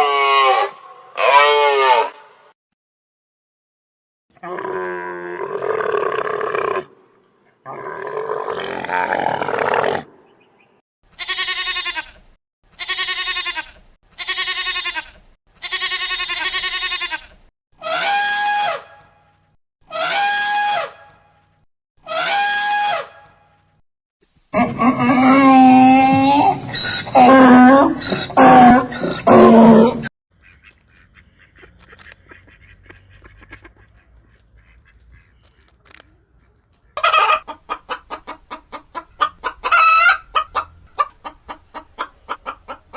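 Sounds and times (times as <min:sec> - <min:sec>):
animal calls: 0:24.6 - 0:30.8.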